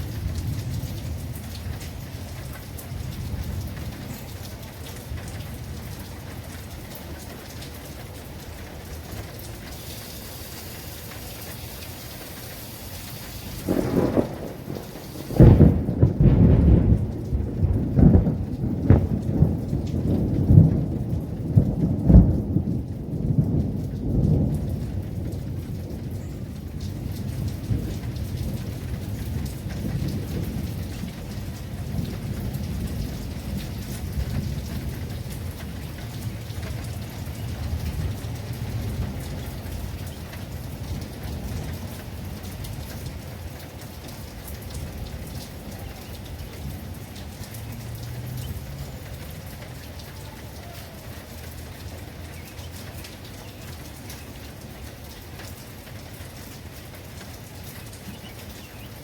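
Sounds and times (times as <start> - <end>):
thunder cracking and rumbling: 0.0 - 9.5, 13.0 - 50.0
heavy rain: 0.0 - 59.0.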